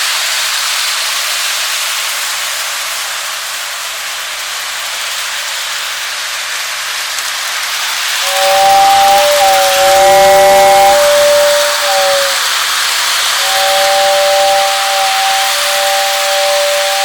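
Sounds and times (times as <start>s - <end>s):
steady hiss: 0.0s - 17.0s
toy steam locomotive whistle: 7.6s - 17.0s.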